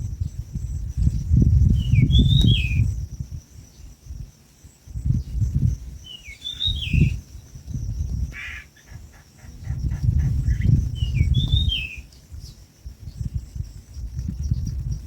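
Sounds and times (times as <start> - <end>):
bird chirping: 1.6 - 3.0, 6.0 - 13.4.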